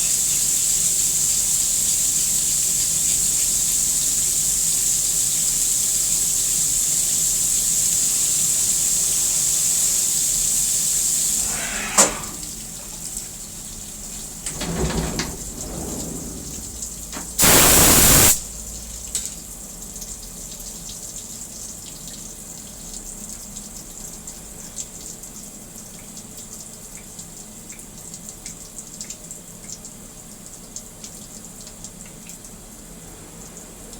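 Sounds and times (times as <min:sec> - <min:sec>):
coolant spraying and hissing: 0:00.0 - 0:18.5
loud burst of spray or air: 0:14.6 - 0:18.5.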